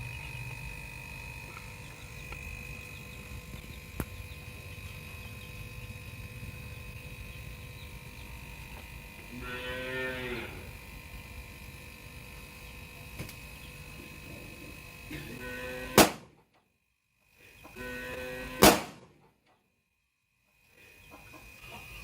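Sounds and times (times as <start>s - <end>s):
low machine hum with whine: 0.0s - 22.0s
cow mooing: 9.3s - 10.8s, 15.1s - 16.0s, 17.8s - 18.6s
sharp loud click: 16.0s - 16.3s, 18.6s - 19.1s.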